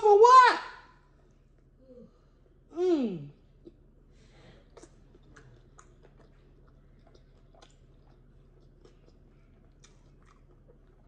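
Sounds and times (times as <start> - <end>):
low room hum: 0.0 - 11.0
faint chewing: 3.5 - 11.0.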